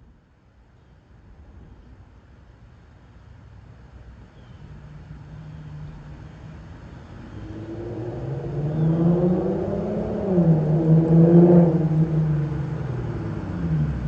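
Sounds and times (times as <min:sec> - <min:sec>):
car exhaust approaching: 0:04.9 - 0:14.0.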